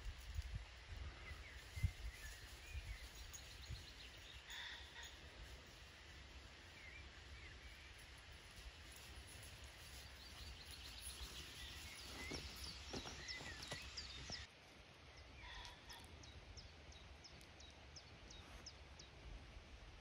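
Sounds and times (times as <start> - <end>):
small birds chirping: 1.0 - 5.3, 6.7 - 19.3.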